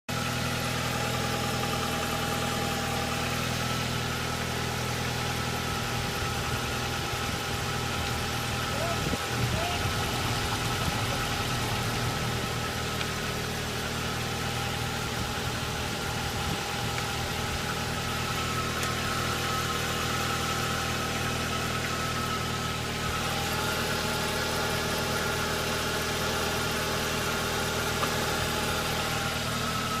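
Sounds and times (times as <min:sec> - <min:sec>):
car engine idling: 0:00.1 - 0:30.0.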